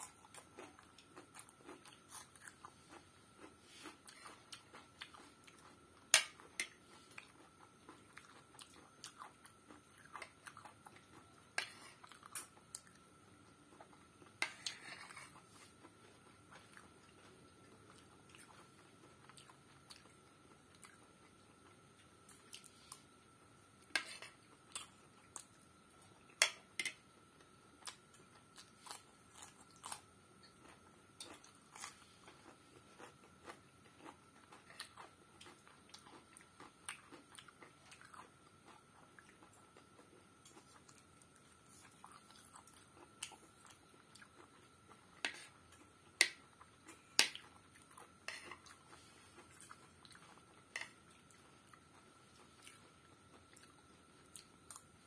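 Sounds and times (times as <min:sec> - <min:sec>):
chewing and biting food: 0:00.0 - 0:13.0, 0:27.8 - 0:54.9
spoon scraping through food: 0:14.4 - 0:15.9, 0:23.9 - 0:24.4, 0:48.2 - 0:49.4.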